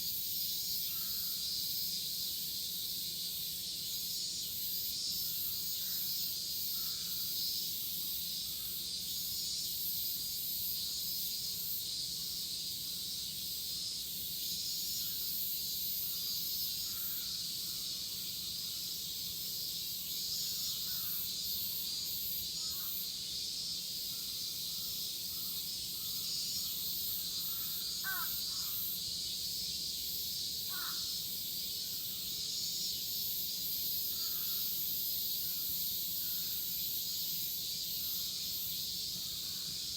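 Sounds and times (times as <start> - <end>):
cicadas shrilling: 0.0 - 39.9
crows cawing: 27.5 - 28.8, 30.7 - 31.1.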